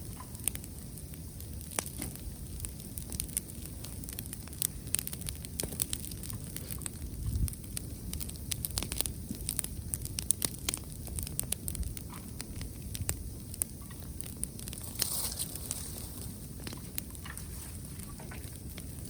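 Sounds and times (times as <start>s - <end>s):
bonfire crackling and popping: 0.0s - 19.0s
wind buffeting microphone: 5.2s - 19.0s.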